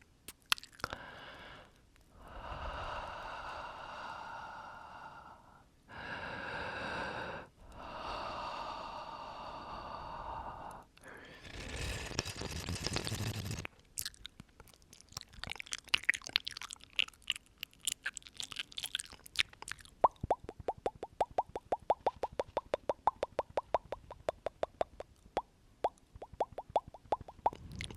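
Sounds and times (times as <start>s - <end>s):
wet mouth clicks and smacks: 0.0s - 1.0s, 11.5s - 27.9s
person breathing: 0.8s - 13.6s
breath blown onto microphone: 10.0s - 13.7s.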